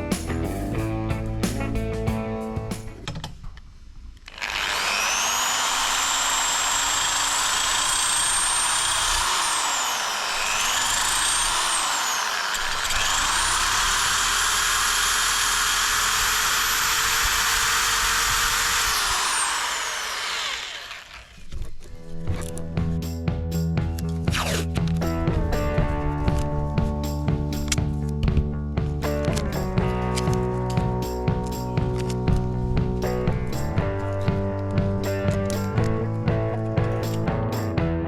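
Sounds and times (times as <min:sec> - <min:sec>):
power tool motor whining: 0:04.2 - 0:22.6, 0:24.3 - 0:25.2.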